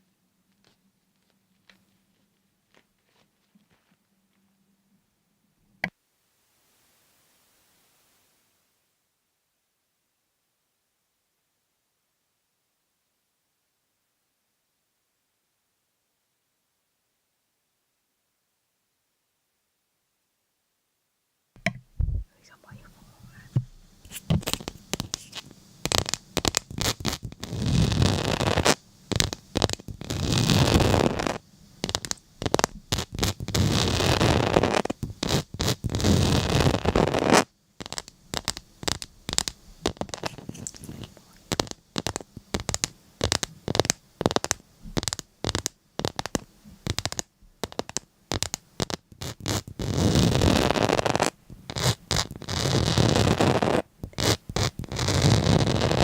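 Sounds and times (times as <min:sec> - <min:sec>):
scratching and rubbing: 0:22.1 - 0:56.0.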